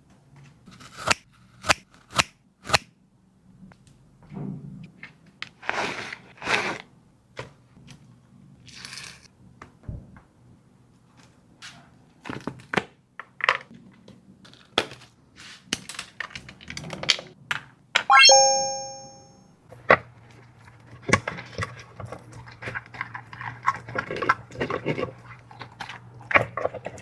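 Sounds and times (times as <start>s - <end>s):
dog chewing crunchy food: 21.6s - 27.0s.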